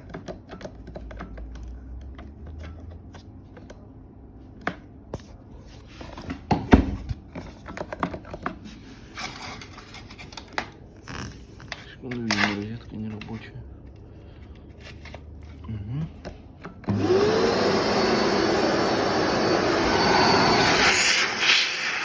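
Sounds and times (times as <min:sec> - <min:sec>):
hands handling vacuum cleaner: 0:04.5 - 0:22.0.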